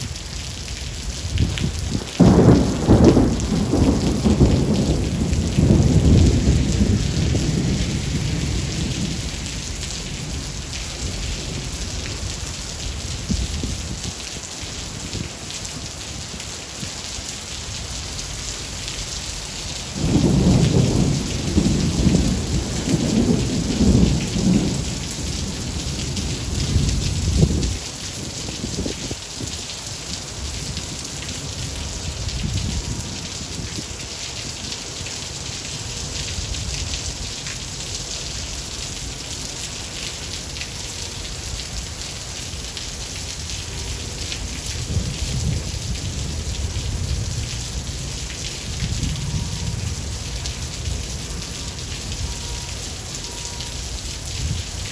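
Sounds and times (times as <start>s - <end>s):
heavy rain hissing: 0.0s - 54.9s
rolling thunder: 1.2s - 14.2s, 19.9s - 29.6s, 44.3s - 52.7s.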